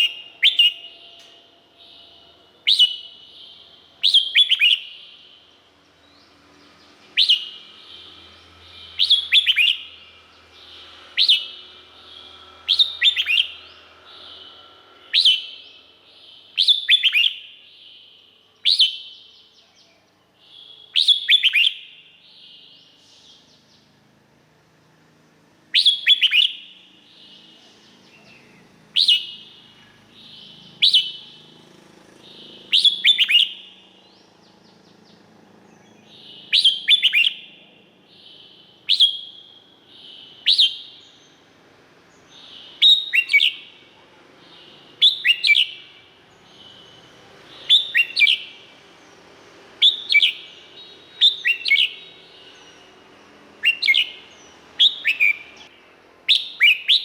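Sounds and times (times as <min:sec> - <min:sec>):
bird whistling phrases: 0:00.0 - 0:05.3, 0:07.1 - 0:19.4, 0:20.5 - 0:22.8, 0:25.7 - 0:27.4, 0:29.0 - 0:31.4, 0:32.3 - 0:33.8, 0:36.0 - 0:37.6, 0:38.2 - 0:41.3, 0:42.3 - 0:43.8, 0:44.5 - 0:48.7, 0:49.8 - 0:52.9, 0:53.6 - 0:55.7, 0:56.3 - 0:57.0.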